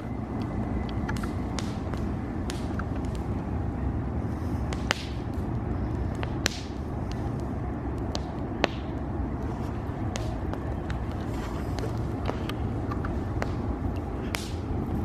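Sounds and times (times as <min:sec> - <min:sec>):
campfire crackling: 0:00.0 - 0:15.0
low rumble: 0:00.0 - 0:15.0
sharp pops with hiss: 0:00.9 - 0:03.3, 0:04.6 - 0:09.0, 0:11.7 - 0:14.7.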